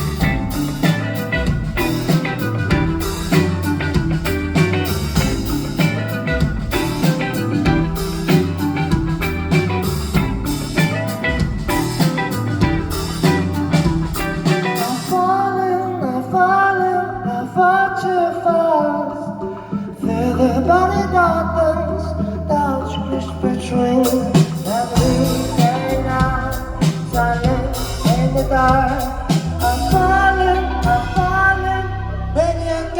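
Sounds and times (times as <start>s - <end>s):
drum kit: 0.0s - 15.3s, 24.0s - 31.7s
bass and held chords: 0.0s - 16.1s, 20.0s - 32.9s
guitar playing: 0.0s - 32.9s
person singing: 0.0s - 32.9s.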